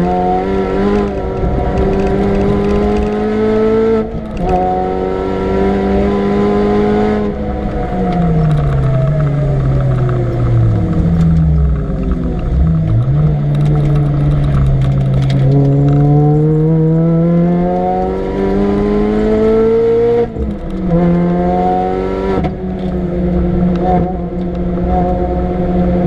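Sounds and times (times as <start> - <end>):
car engine revving hard: 0.0 - 7.7, 15.4 - 22.6.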